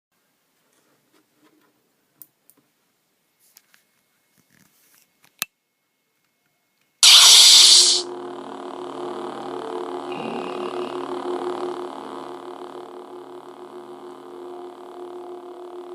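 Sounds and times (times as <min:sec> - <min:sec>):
lightsaber ignition burst: 0:07.0 - 0:08.1
lightsaber hum: 0:07.0 - 0:15.9.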